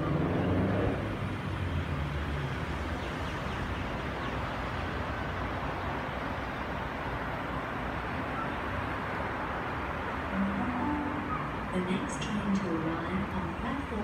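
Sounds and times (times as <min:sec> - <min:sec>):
electric train approaching: 0:03.9 - 0:14.0.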